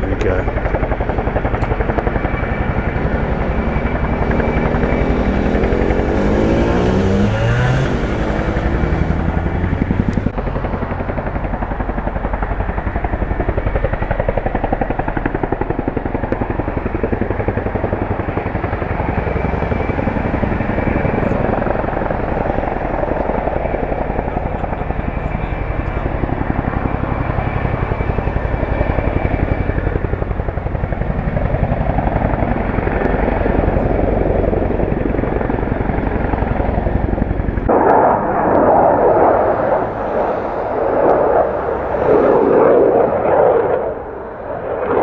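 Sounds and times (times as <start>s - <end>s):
whine gliding down in pitch: 0.0s - 15.3s, 37.6s - 45.0s
helicopter rotors chopping: 0.0s - 45.0s.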